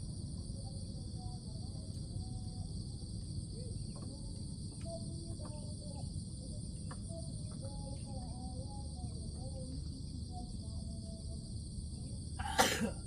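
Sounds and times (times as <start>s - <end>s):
insect chorus buzzing: 0.0s - 13.0s.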